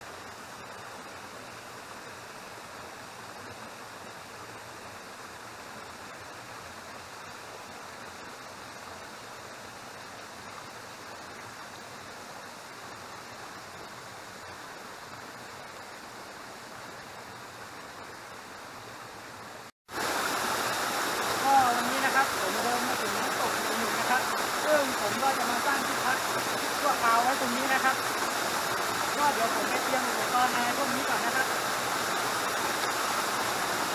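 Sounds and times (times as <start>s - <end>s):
waterfall and stream rushing: 0.0s - 33.9s.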